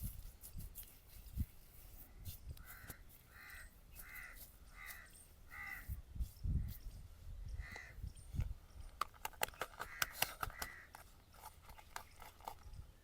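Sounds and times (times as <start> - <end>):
bird calling: 2.6 - 6.0.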